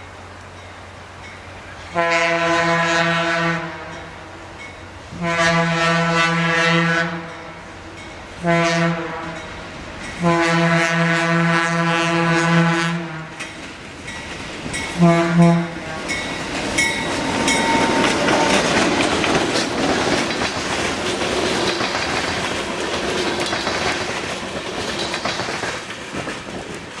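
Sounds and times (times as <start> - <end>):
train rumbling past: 0.0 - 27.0
locomotive horn blast: 1.8 - 4.2, 5.1 - 7.8, 8.4 - 9.5, 10.2 - 13.4, 14.9 - 16.2, 16.8 - 19.2
wheels clicking over rail joints: 13.2 - 15.1, 16.0 - 27.0.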